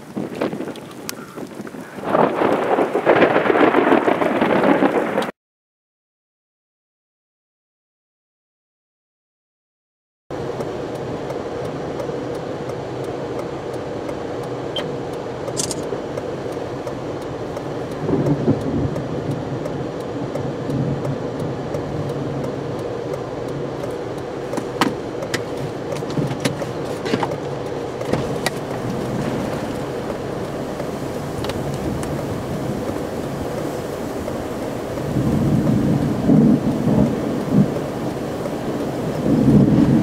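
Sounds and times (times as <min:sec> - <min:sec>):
wind rumble: 0:00.0 - 0:05.3, 0:10.3 - 0:40.0
vehicle hum: 0:10.3 - 0:40.0
sharp ticks and taps: 0:10.5 - 0:28.9, 0:30.0 - 0:39.7.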